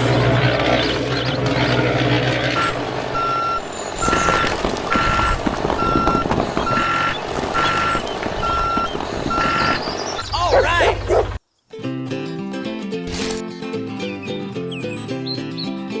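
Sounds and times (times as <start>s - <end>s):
vehicle engine rumble: 0.0s - 11.4s
reversing alarm beeping: 0.4s - 10.4s.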